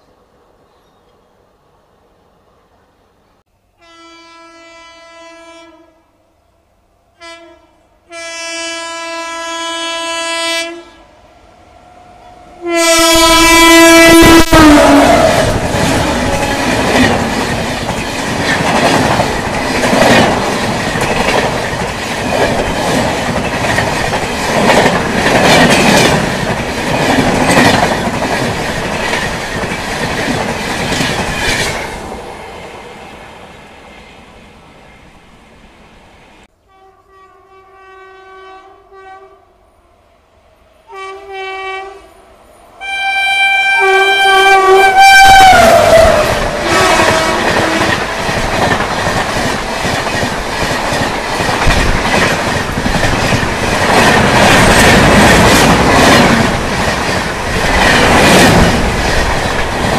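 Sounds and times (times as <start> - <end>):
locomotive horn blasts: 3.8 - 6.1, 7.2 - 11.1, 12.6 - 17.0, 36.6 - 39.5, 40.9 - 42.2, 42.8 - 48.0
train wheels clattering over rail joints: 15.4 - 31.9, 46.9 - 59.9.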